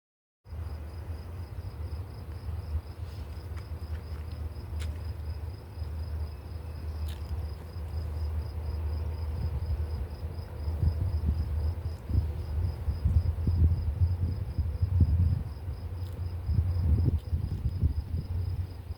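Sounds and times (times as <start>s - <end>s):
crickets chirping: 0.5s - 18.9s
low rumble: 6.0s - 18.9s.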